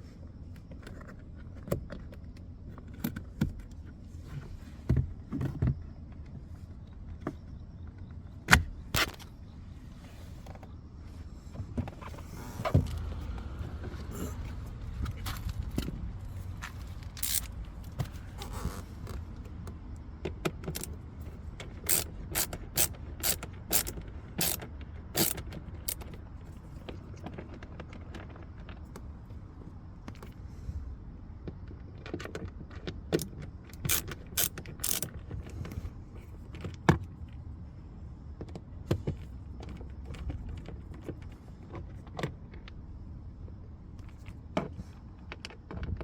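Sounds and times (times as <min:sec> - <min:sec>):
clicks on plastic parts: 0:21.6 - 0:26.2, 0:32.0 - 0:35.8.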